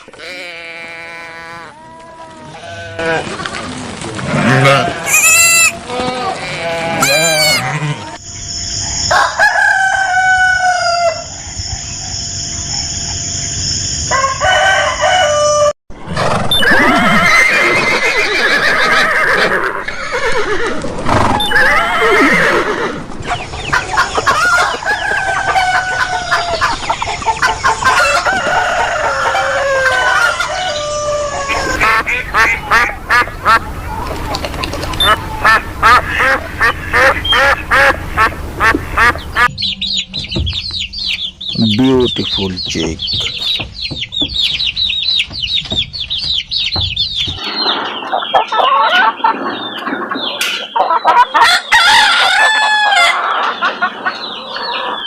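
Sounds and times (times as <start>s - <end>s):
chickens clucking: 1.6s - 8.2s, 16.1s - 55.0s
rooster crowing: 9.0s - 11.4s, 14.1s - 15.8s, 24.0s - 26.8s, 27.8s - 34.1s, 51.4s - 53.5s.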